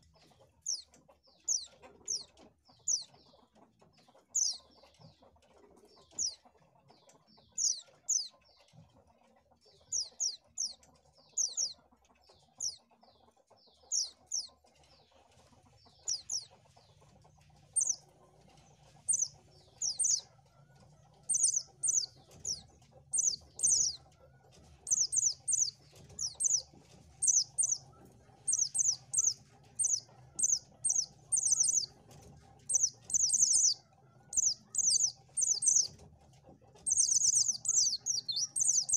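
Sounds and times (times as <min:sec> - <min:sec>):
bird high chirps: 0:04.4 - 0:04.6, 0:07.5 - 0:08.3, 0:09.9 - 0:11.8, 0:13.8 - 0:14.5, 0:15.9 - 0:17.1, 0:17.7 - 0:20.3, 0:21.2 - 0:24.1, 0:24.8 - 0:36.0, 0:36.8 - 0:38.9.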